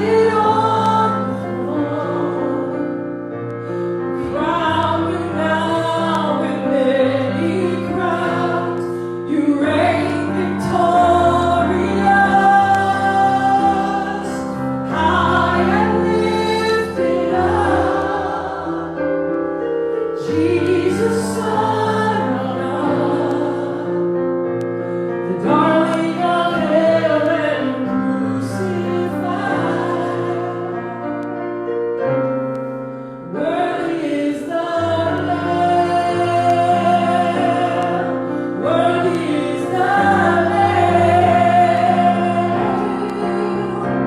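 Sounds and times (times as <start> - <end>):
congregation singing slow song: 0.0 - 3.5, 4.2 - 31.4, 32.6 - 44.0
sustained instrumental chords: 0.0 - 33.2.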